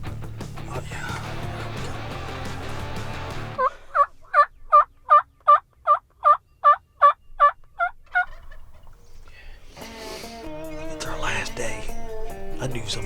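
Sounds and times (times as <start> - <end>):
turkey yelping: 3.6 - 9.1.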